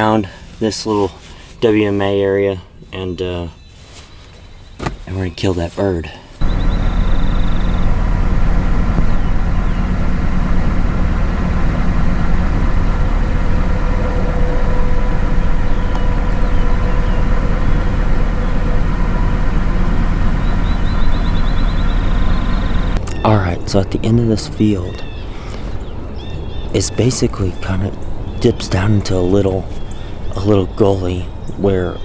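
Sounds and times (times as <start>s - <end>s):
road noise: 4.7s - 32.0s
low truck engine hum: 6.4s - 32.0s.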